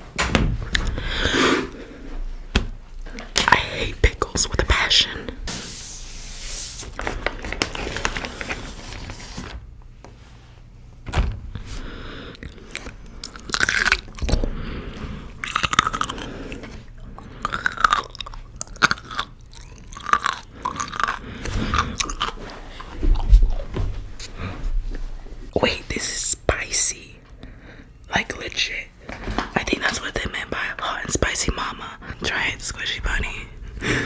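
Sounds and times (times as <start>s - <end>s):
crunchy chewing of pickle: 12.4s - 14.5s, 15.3s - 24.4s.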